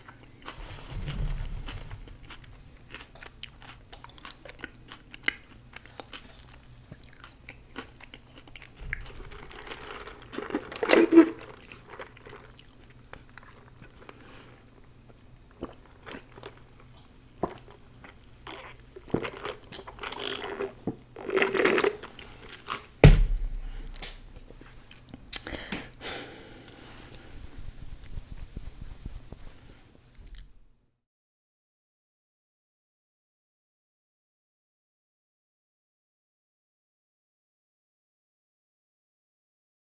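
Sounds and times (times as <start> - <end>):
chewing and crunching food: 0.0 - 23.0
sharp knock with low thud: 23.0 - 23.8.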